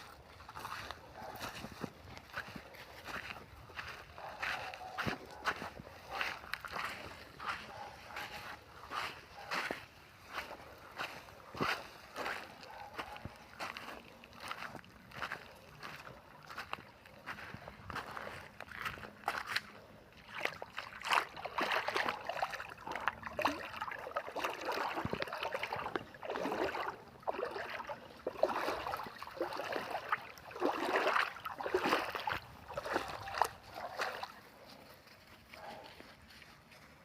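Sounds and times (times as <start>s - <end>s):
river water splashing: 20.1s - 34.5s.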